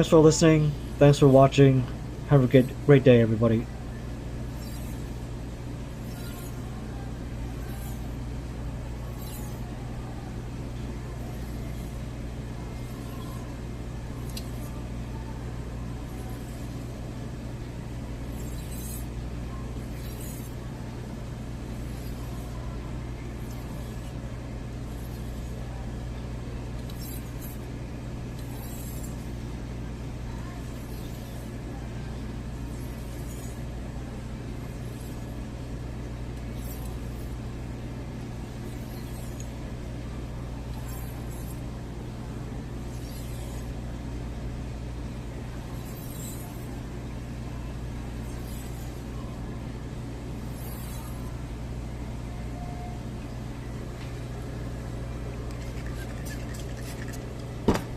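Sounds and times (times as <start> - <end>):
steady low hum: 0.0 - 57.9
knife scraping on whetstone: 4.5 - 5.1, 6.0 - 6.7, 7.5 - 8.2, 9.1 - 9.7, 11.2 - 12.1, 12.8 - 13.5, 14.2 - 14.8, 16.1 - 16.9, 18.3 - 19.2, 19.8 - 20.6, 21.7 - 24.2, 24.8 - 25.7, 26.8 - 27.6, 28.4 - 29.3, 30.6 - 31.6, 32.6 - 33.7, 34.6 - 35.4, 36.5 - 37.4, 38.5 - 39.6, 40.7 - 41.7, 42.8 - 43.8, 45.7 - 46.8, 48.2 - 49.1, 50.4 - 51.3, 55.5 - 57.8.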